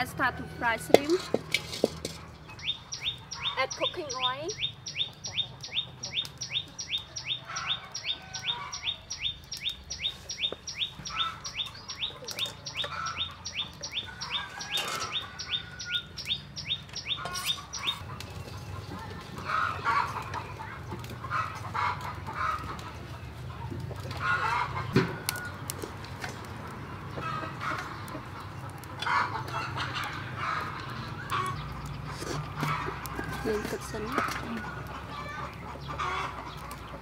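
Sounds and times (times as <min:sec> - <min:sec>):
chickens clucking: 0:00.0 - 0:37.0
bird chirping: 0:02.3 - 0:19.0.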